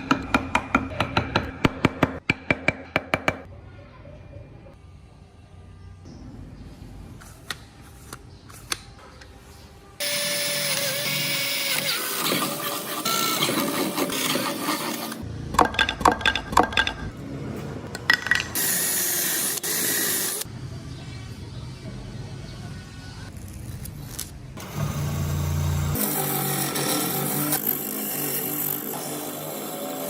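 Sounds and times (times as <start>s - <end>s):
power tool working wood: 10.0s - 15.2s.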